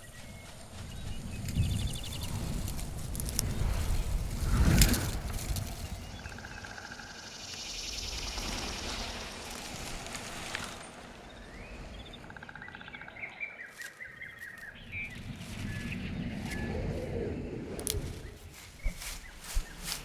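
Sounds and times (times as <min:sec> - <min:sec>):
wild birds chirping: 0:00.0 - 0:20.0
background hiss: 0:00.3 - 0:12.0.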